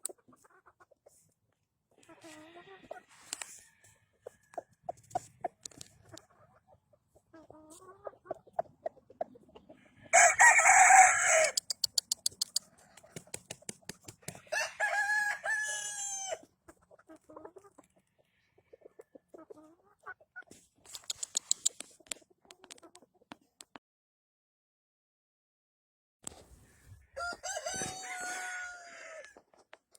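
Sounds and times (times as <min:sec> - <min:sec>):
chickens clucking: 0:00.0 - 0:03.3, 0:04.2 - 0:10.2, 0:11.6 - 0:14.5, 0:16.4 - 0:23.6
rooster crowing: 0:10.1 - 0:11.6, 0:14.5 - 0:16.4, 0:27.1 - 0:29.3
quick clicks: 0:11.5 - 0:14.3, 0:20.9 - 0:22.8.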